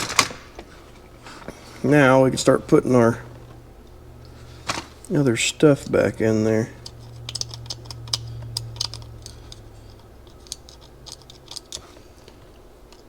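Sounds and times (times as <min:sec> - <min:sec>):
low steady hum: 0:00.0 - 0:13.0
small metal parts clicking: 0:06.8 - 0:13.0.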